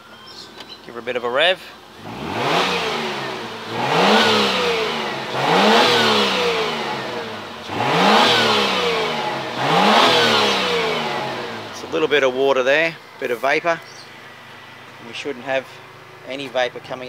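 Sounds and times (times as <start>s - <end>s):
car engine revving: 1.6s - 17.0s.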